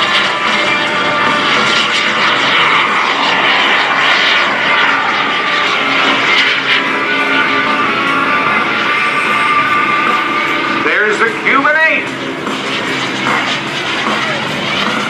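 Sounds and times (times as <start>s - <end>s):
jet engine running: 0.0s - 15.0s.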